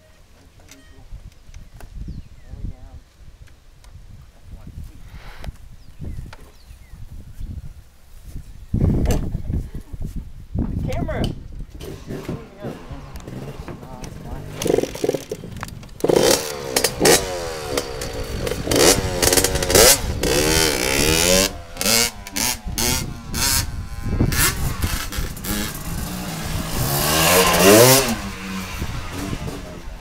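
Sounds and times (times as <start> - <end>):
short rattles: 11.8 - 23.1
dirt bike engine revving: 11.8 - 30.0.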